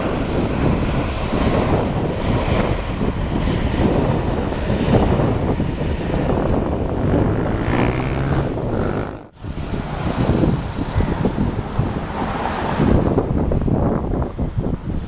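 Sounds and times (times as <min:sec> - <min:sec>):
jet engines rumbling: 0:00.0 - 0:15.0
wind buffeting microphone: 0:00.0 - 0:15.0.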